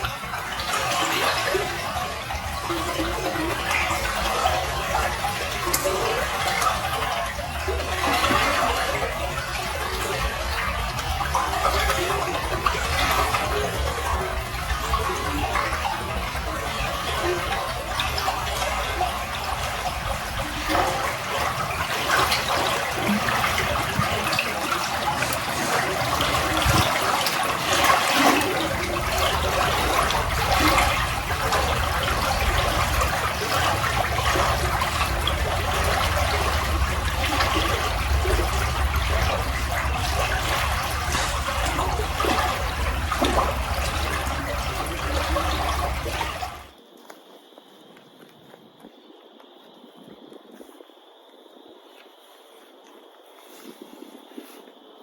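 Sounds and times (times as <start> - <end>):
flowing water rushing: 0.0 - 46.8
low rumble: 28.4 - 46.7.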